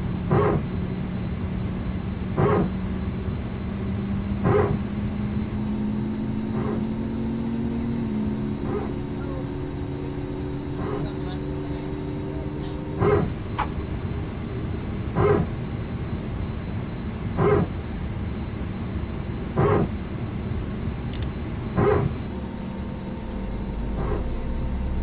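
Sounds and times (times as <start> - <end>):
aircraft hum: 0.0 - 25.0
deep engine rumble: 0.0 - 25.0
aircraft hydraulic pump barking: 0.3 - 0.7, 2.4 - 2.8, 4.4 - 4.9, 5.6 - 12.1, 12.9 - 13.8, 15.1 - 15.6, 17.4 - 17.8, 19.6 - 20.0, 21.8 - 24.4.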